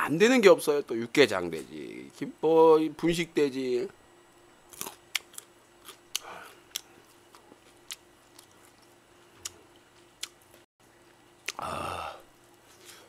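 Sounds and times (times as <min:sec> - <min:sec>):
faint steady hum: 0:00.0 - 0:13.0
crunchy chewing: 0:04.7 - 0:10.7.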